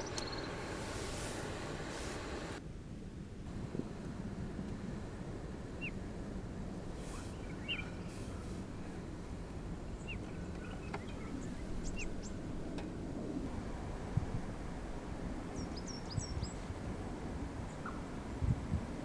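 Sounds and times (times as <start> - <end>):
small birds chirping: 0.0 - 2.6, 7.0 - 8.6, 9.8 - 12.4
low background rumble: 0.0 - 19.0.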